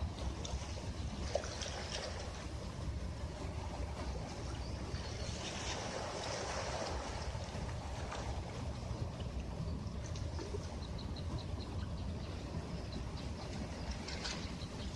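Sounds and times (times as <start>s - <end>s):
sea waves washing onto beach: 0.0s - 10.6s
steady low rumble: 0.0s - 14.9s.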